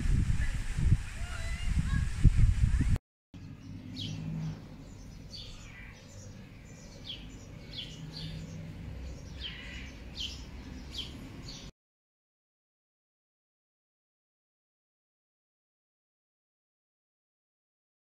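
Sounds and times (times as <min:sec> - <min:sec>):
birds chirping: 0:02.8 - 0:11.7.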